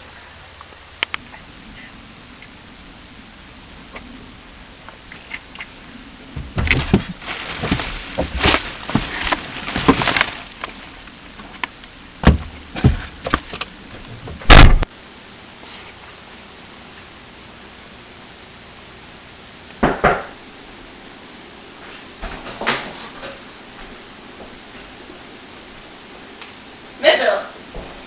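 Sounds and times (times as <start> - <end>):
heavy thump: 6.4 - 10.4, 12.2 - 14.9.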